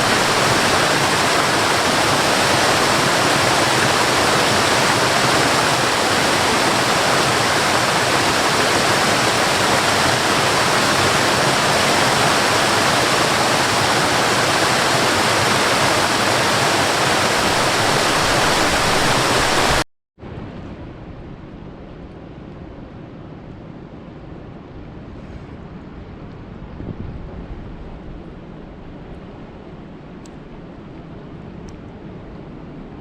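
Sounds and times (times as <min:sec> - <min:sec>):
heavy rain pouring: 0:00.0 - 0:19.8.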